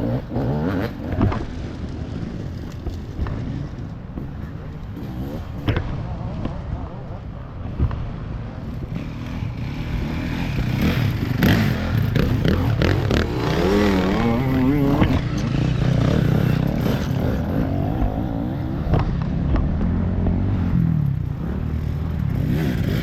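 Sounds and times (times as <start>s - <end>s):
motorcycle engine revving past: 8.9s - 23.0s.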